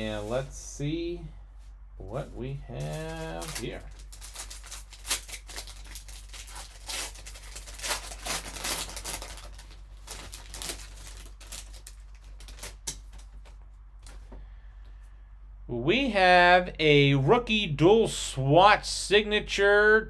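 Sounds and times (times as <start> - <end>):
low electrical hum: 0.0 - 20.0
card packaging crinkling: 2.8 - 14.2.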